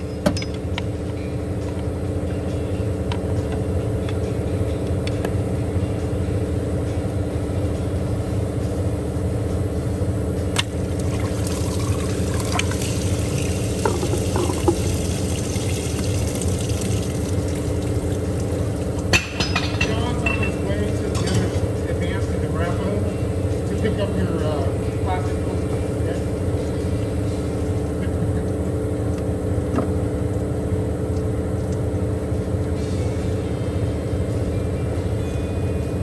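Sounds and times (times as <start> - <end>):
steady low hum: 0.0 - 36.0
coolant pouring and splashing: 10.6 - 19.1.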